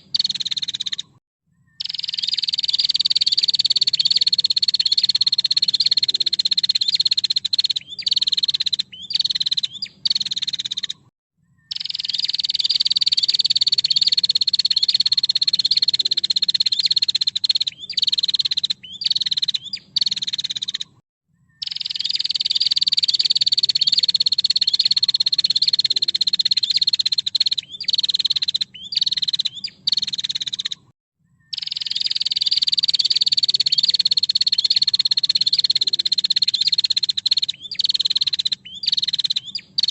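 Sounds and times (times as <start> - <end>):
bird buzzing trills: 11.7 - 20.9, 21.6 - 30.8, 31.5 - 39.9.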